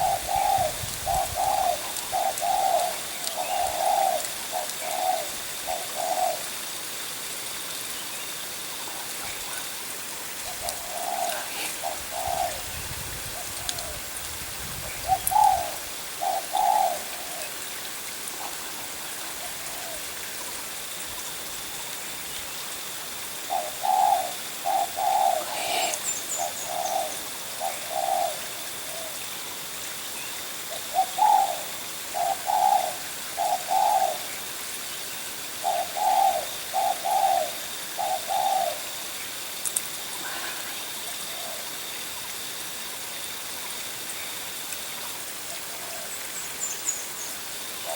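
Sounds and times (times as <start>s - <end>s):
doves cooing: 0.0s - 6.6s, 8.8s - 14.1s, 14.9s - 17.6s, 18.3s - 20.1s, 23.4s - 29.2s, 30.7s - 34.4s, 35.6s - 39.0s.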